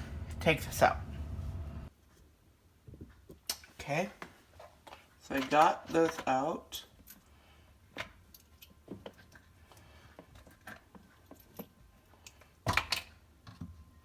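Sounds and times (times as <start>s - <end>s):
clicks and knocks of handled parts: 3.2s - 7.3s, 7.9s - 13.8s.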